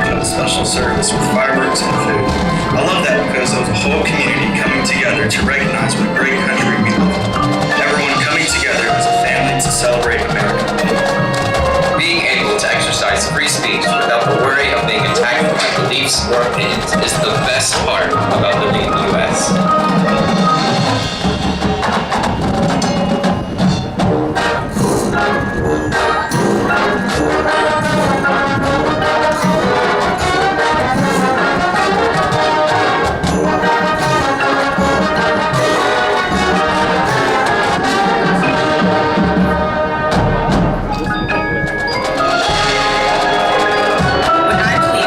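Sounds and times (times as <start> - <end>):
mallet percussion: 0.0 - 45.0
marching band brass: 0.0 - 45.0.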